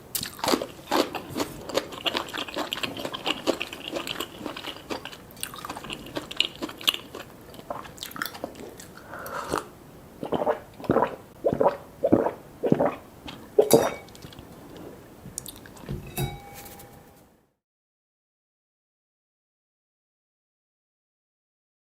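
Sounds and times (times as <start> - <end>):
close eating and chewing: 0.0 - 16.7.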